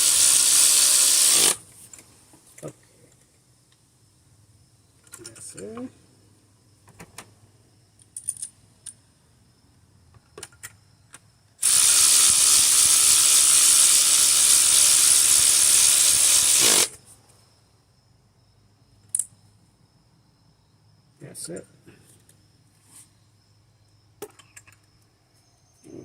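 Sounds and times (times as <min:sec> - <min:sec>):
ratchet wrench clicking: 0:00.0 - 0:01.6, 0:11.6 - 0:16.9.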